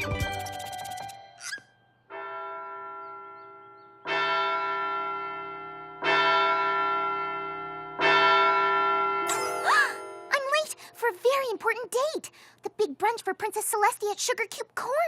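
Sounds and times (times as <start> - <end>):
clock bell tolling: 2.1 - 10.4.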